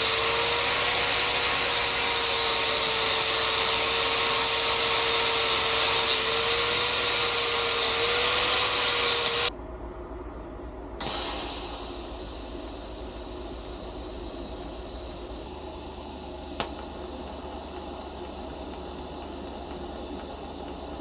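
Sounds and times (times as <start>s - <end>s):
power grinder grinding: 0.0s - 9.5s
low hum: 9.4s - 21.0s.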